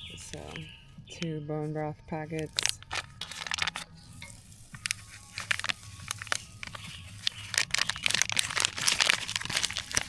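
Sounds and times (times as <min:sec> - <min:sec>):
plastic packets crinkling and tearing: 0:02.4 - 0:10.0.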